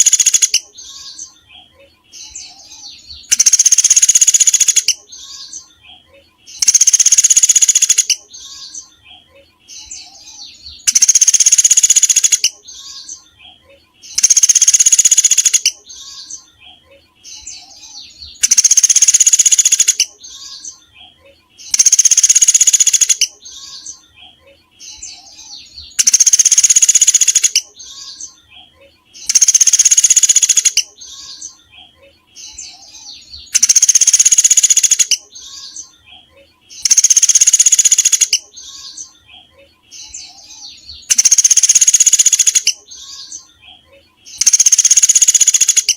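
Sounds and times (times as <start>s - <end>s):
songbird trilling: 0.0s - 1.4s, 2.2s - 5.7s, 6.5s - 8.9s, 9.7s - 13.2s, 14.0s - 16.4s, 17.3s - 20.8s, 21.6s - 24.0s, 24.8s - 28.4s, 29.2s - 31.6s, 32.4s - 36.0s, 36.7s - 39.2s, 39.9s - 43.5s, 44.3s - 45.9s
soft bird chirps: 0.0s - 45.9s.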